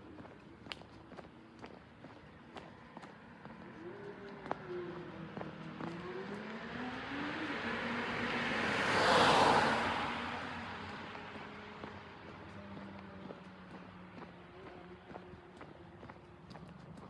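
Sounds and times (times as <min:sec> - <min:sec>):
motor vehicle passing by: 0:03.5 - 0:17.0.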